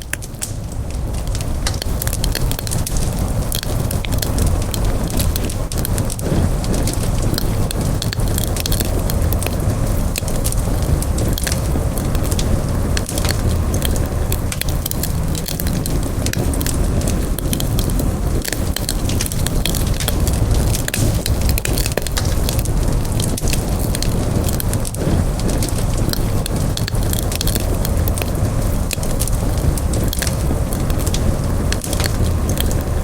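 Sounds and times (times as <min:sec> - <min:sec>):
campfire crackling and popping: 0:00.0 - 0:33.0.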